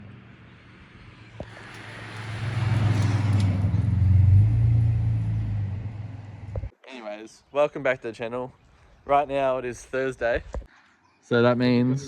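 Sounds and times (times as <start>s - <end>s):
car engine rumbling: 0.0s - 6.7s.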